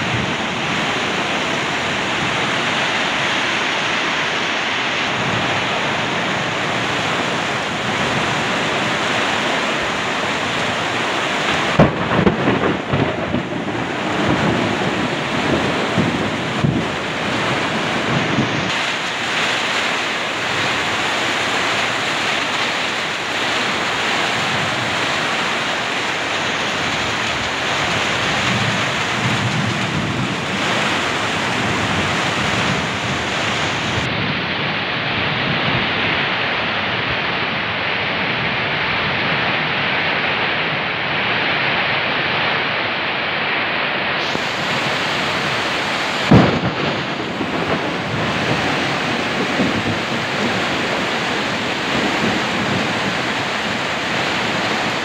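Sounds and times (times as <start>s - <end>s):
heavy rain on tin roofs: 0.0s - 55.0s
loud thump: 46.3s - 47.1s.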